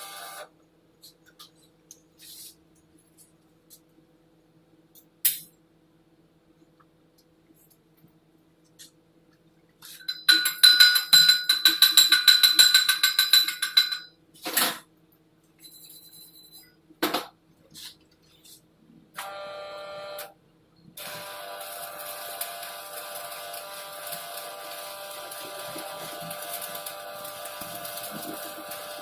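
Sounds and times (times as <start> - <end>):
electric buzz: 21.0 - 29.0.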